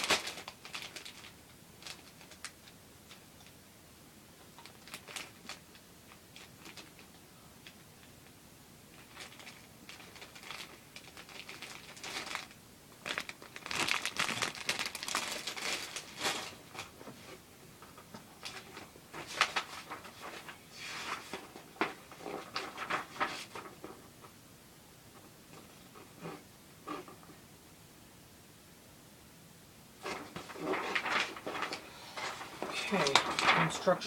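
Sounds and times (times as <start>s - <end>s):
packaging crinkling and rustling: 0.0s - 3.6s, 4.4s - 7.8s, 8.9s - 24.4s, 30.0s - 34.0s.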